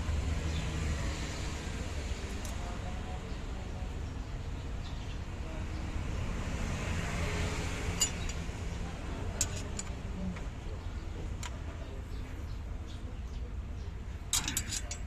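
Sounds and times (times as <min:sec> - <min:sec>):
hand tools clinking on metal: 0:08.0 - 0:08.4, 0:09.4 - 0:09.9, 0:14.3 - 0:15.0.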